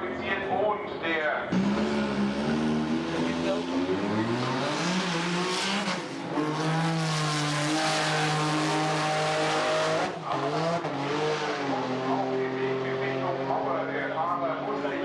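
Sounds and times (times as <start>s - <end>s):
drag racing car engine revving: 1.4s - 15.0s.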